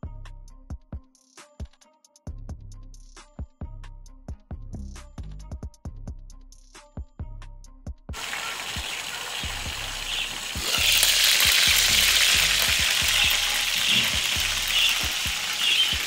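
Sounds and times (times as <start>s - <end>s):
seafood sizzling in a pan: 8.2s - 16.0s.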